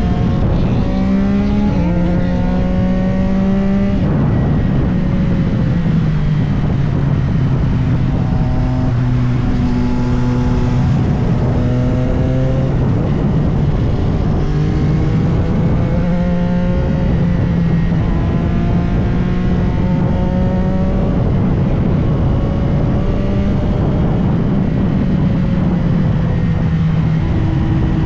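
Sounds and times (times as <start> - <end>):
motorcycle engine accelerating: 0.0 - 28.0
wind and road noise: 0.0 - 28.0.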